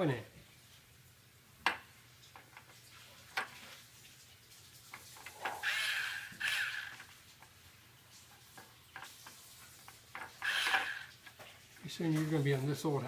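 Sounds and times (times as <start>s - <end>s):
power drill motor whining: 5.6s - 7.1s, 10.4s - 11.1s.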